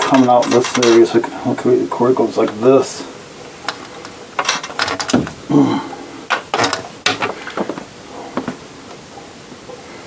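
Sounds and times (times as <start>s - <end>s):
clicks and knocks of handling parts: 0.0s - 1.7s, 3.6s - 5.4s, 6.3s - 9.0s
murmured voice: 5.5s - 6.1s.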